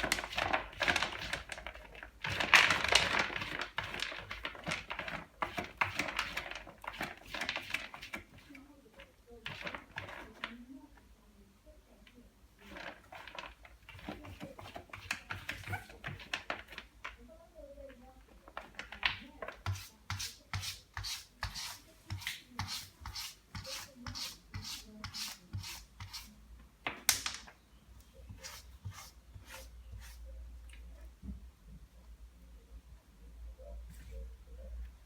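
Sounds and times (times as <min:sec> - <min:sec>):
cat scratching in litter: 0:00.0 - 0:10.6, 0:12.6 - 0:17.2, 0:18.5 - 0:26.4, 0:28.2 - 0:30.3.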